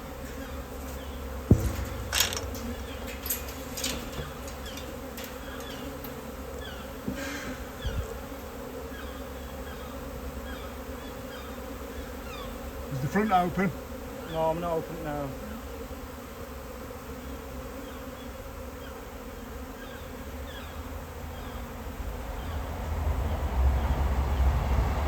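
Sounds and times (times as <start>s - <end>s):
bee swarm buzzing: 0.0s - 22.9s
sharp knock: 1.5s - 4.8s.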